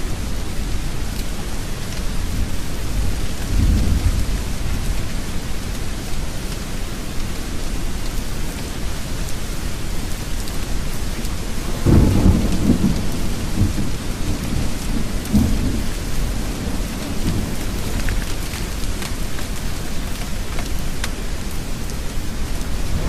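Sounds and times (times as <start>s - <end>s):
steady rain: 0.0s - 23.0s
thunder rumbling: 22.4s - 23.0s.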